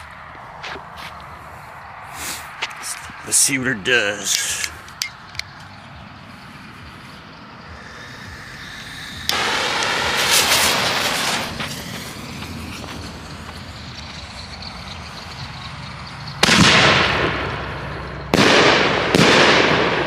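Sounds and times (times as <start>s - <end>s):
firework bursts: 6.4s - 20.0s
firework shell launch: 7.9s - 14.2s, 16.4s - 20.0s.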